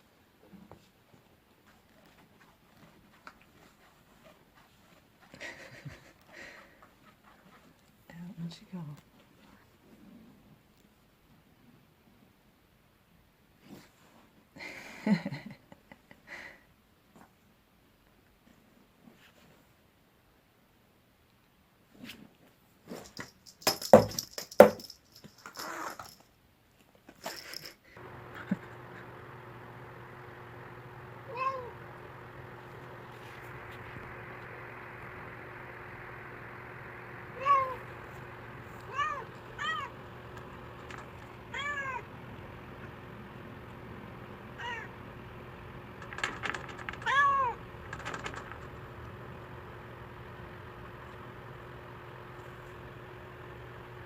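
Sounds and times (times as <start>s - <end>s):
steady background hum: 27.6s - 53.6s
cat meowing: 31.3s - 31.7s, 37.4s - 37.8s, 38.9s - 39.9s, 41.5s - 42.1s, 44.6s - 44.9s, 47.0s - 47.6s.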